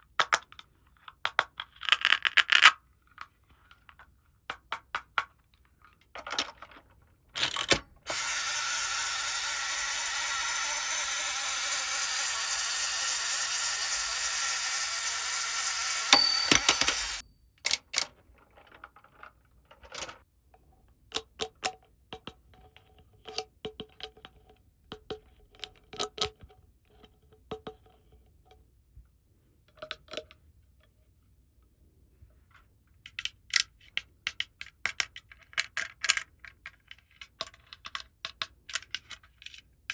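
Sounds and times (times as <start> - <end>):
plastic toy parts clicking: 33.1 - 39.6.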